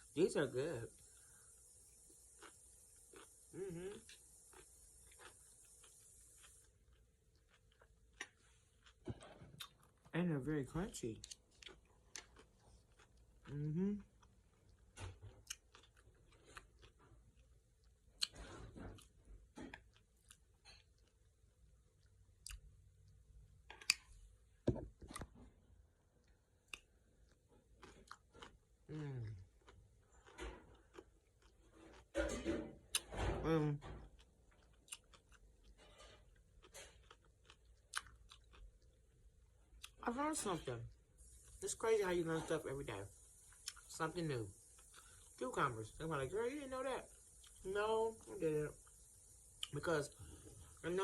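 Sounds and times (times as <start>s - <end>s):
person chewing crunchy food: 0.9s - 10.1s, 11.2s - 21.3s, 26.2s - 32.3s, 34.1s - 40.0s, 44.5s - 45.4s.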